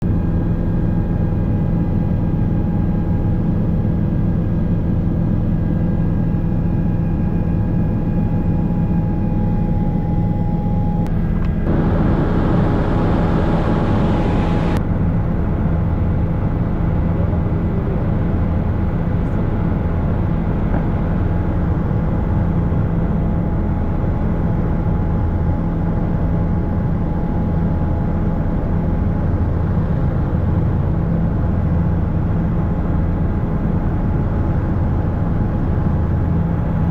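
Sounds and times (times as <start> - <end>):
helicopter engine and rotor drone: 0.0 - 36.9
faint high whine: 7.3 - 14.8.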